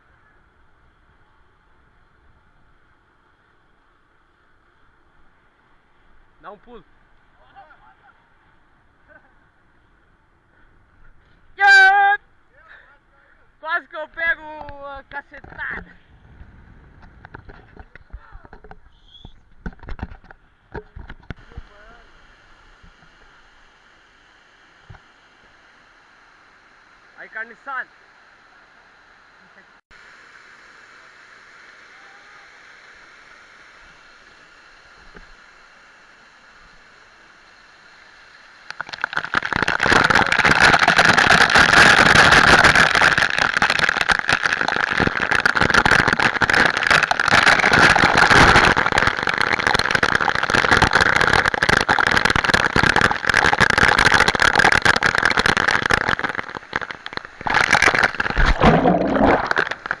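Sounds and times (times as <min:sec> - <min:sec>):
crackling water spray: 0:13.9 - 0:27.7, 0:29.5 - 1:00.0.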